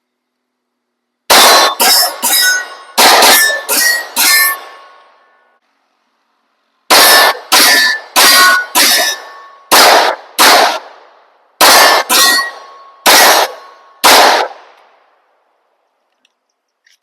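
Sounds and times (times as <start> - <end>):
pistol shots with ringing tail: 1.3 - 5.0, 6.9 - 11.0, 11.6 - 14.7.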